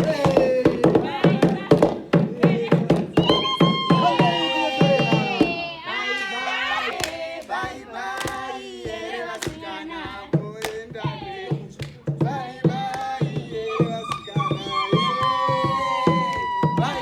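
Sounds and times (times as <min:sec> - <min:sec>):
people singing together: 0:00.0 - 0:17.0
hand claps: 0:06.8 - 0:12.2, 0:12.8 - 0:13.3, 0:13.9 - 0:17.0.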